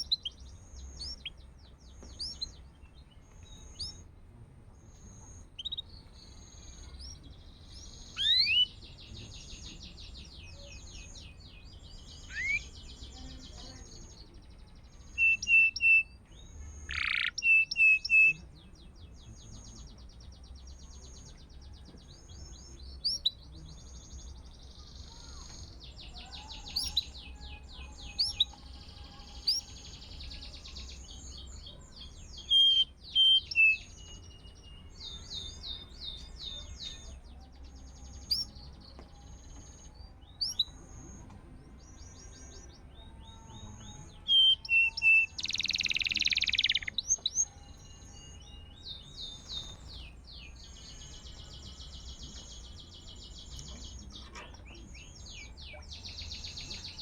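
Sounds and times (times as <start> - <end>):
canary singing trills: 0.0 - 57.0
sharp bird chirps: 7.8 - 8.8, 15.3 - 18.4, 44.4 - 54.0.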